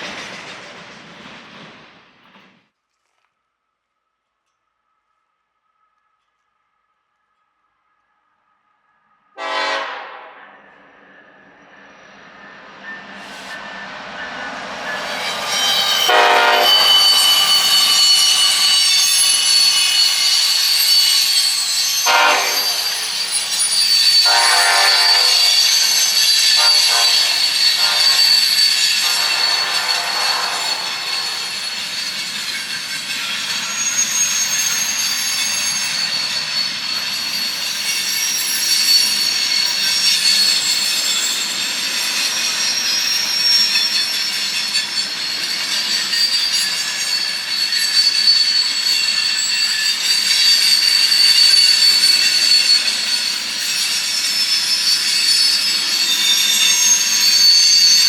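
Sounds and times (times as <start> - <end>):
train passing: 0.0 - 2.7, 9.3 - 58.0
train horn blasts: 9.4 - 10.5, 16.1 - 17.2, 22.0 - 23.0, 24.2 - 25.7, 26.5 - 31.5
high-pitched wheel squeal: 10.4 - 58.0.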